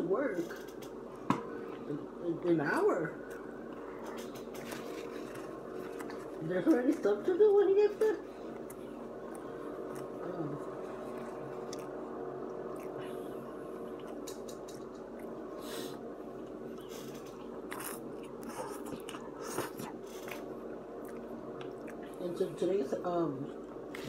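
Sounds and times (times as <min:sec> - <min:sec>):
steady low hum: 0:00.0 - 0:24.0
person chewing food: 0:03.2 - 0:06.5, 0:08.2 - 0:22.2.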